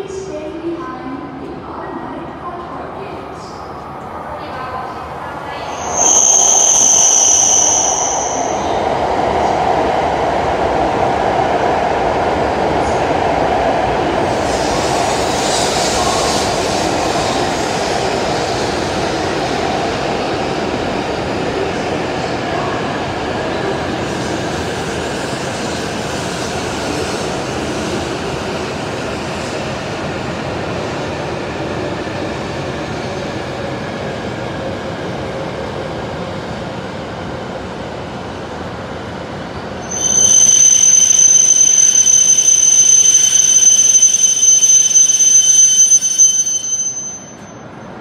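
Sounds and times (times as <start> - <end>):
train rumbling into station: 0.0 - 48.0
high-pitched brake squeal: 5.6 - 8.8, 39.8 - 47.8.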